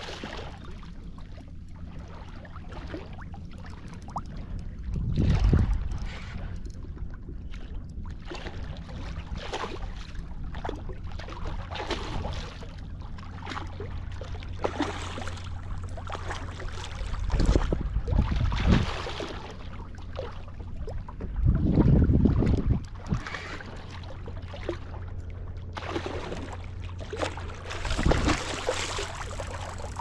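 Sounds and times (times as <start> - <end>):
water splashing and lapping: 0.0 - 30.0
wind rumbling on microphone: 4.2 - 12.6, 15.6 - 24.3, 27.2 - 30.0.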